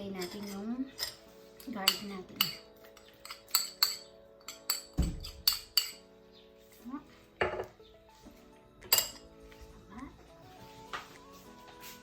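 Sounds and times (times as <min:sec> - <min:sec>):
utensil clinking against a bowl: 0:00.0 - 0:06.1, 0:08.8 - 0:09.4
background music: 0:00.0 - 0:12.0.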